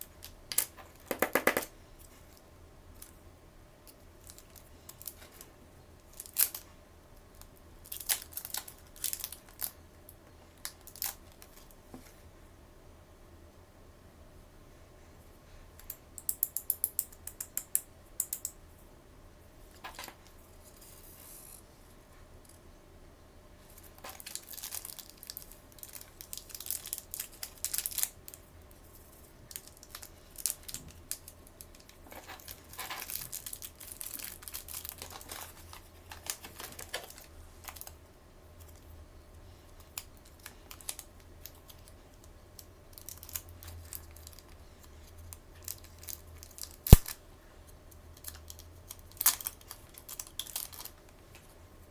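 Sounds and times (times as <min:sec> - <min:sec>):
plastic wrapping crinkling and tearing: 0:07.8 - 0:09.7, 0:24.0 - 0:28.4, 0:29.5 - 0:37.9, 0:42.9 - 0:47.2, 0:48.2 - 0:51.0.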